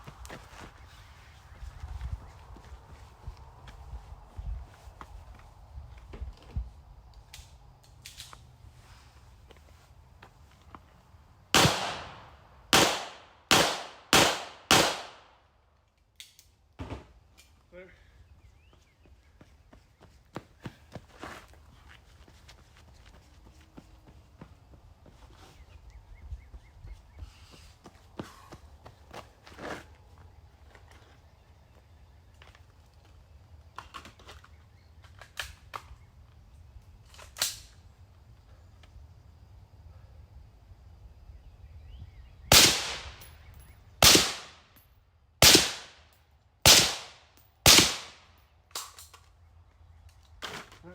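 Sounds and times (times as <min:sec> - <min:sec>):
gunshots with echo: 0:11.6 - 0:15.2, 0:42.5 - 0:43.2, 0:44.0 - 0:44.6, 0:45.4 - 0:46.0, 0:46.7 - 0:48.2.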